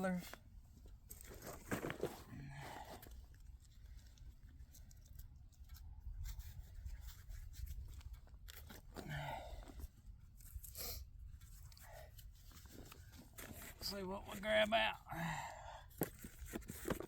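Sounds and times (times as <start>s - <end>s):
soil scratching and crumbling: 0.0s - 17.0s.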